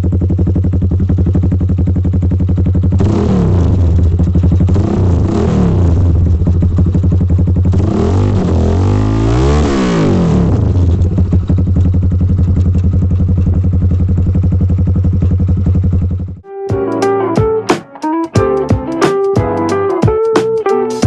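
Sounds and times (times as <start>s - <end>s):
motorcycle engine idling and revving: 0.0s - 16.5s.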